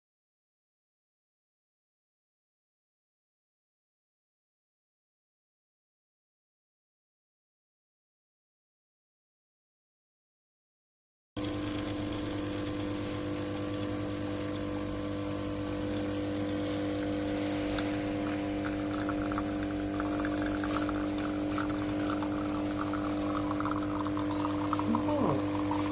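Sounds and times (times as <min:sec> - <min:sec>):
coffee machine pump humming: 0:11.4 - 0:25.9
water gurgling: 0:11.4 - 0:25.9.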